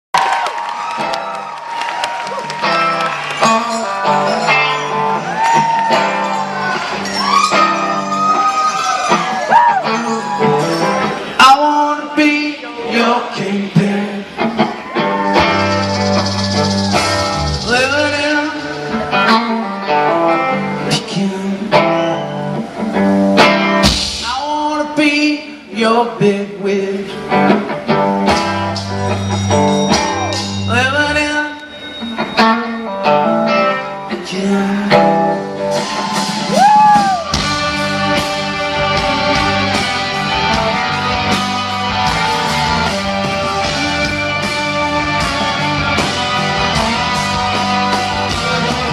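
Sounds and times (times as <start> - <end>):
rock band playing: 0.2 - 48.9
person singing: 9.5 - 15.6, 16.6 - 22.2, 30.2 - 48.9.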